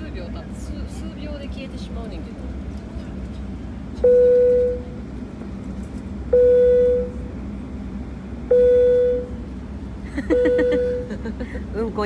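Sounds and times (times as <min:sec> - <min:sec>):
low cabin hum: 0:00.0 - 0:12.0
airliner cabin chime: 0:04.0 - 0:05.1, 0:06.2 - 0:07.4, 0:08.4 - 0:09.5, 0:10.2 - 0:11.4.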